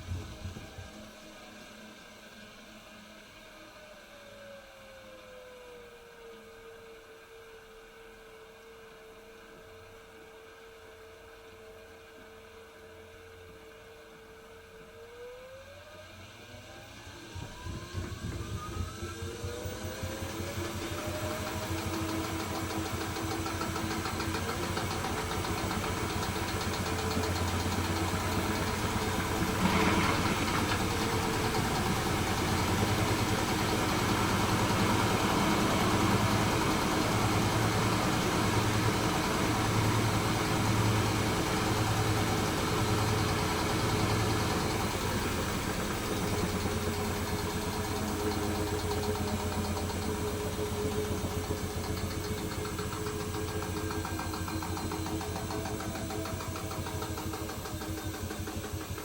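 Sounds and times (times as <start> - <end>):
washing machine spinning: 16.0 - 59.0
pulsing low rumble: 17.3 - 20.2.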